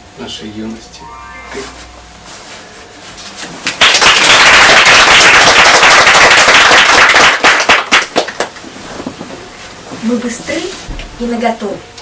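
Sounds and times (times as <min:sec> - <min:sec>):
audience applause: 0:03.7 - 0:08.5.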